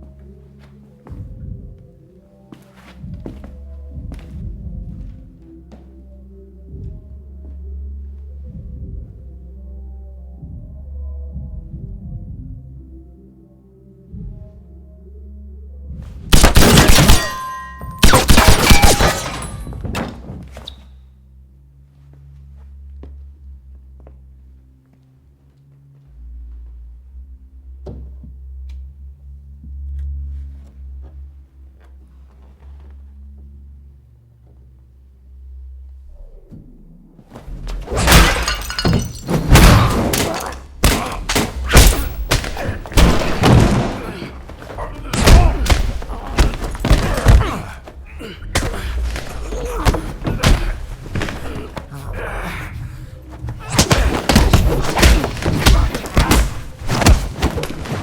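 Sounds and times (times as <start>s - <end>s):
hard hits and crashes: 37.6s - 47.5s, 53.7s - 58.0s
crash of something breaking: 37.8s - 44.1s.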